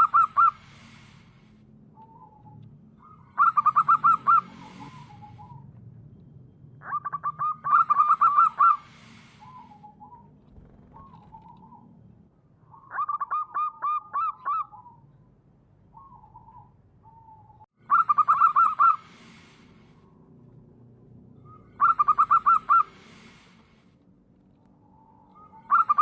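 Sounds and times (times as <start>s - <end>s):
dove cooing rapidly: 0.0s - 0.6s, 3.3s - 5.7s, 6.8s - 11.9s, 12.8s - 15.0s, 16.0s - 19.4s, 21.6s - 23.3s, 25.6s - 26.0s
softer lower dove coos: 0.0s - 1.2s, 1.9s - 5.8s, 6.8s - 12.0s, 15.9s - 20.2s, 21.4s - 23.7s.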